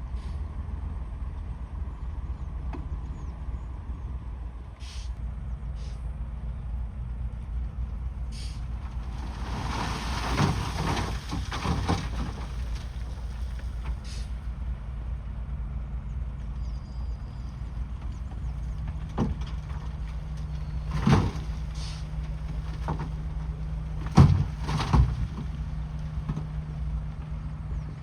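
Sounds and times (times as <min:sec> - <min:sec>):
diesel engine running: 0:00.0 - 0:28.0
rough crackling noise: 0:08.8 - 0:14.0.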